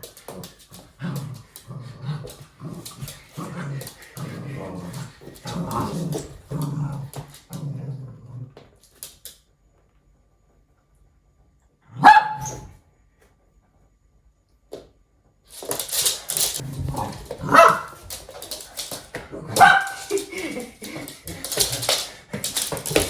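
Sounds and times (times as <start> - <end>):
dog growling: 0.3 - 8.6.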